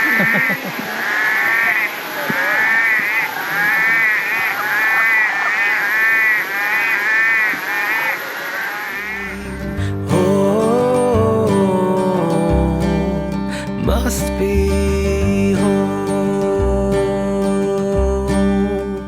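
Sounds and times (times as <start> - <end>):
frogs calling: 0.0 - 9.8.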